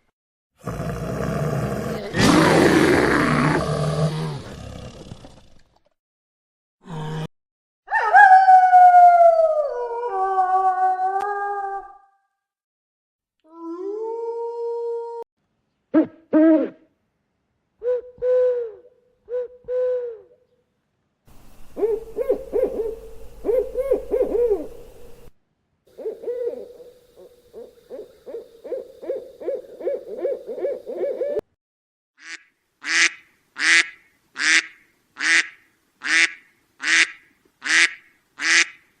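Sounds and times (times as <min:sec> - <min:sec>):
loud sharp animal calls: 0:21.6 - 0:25.3.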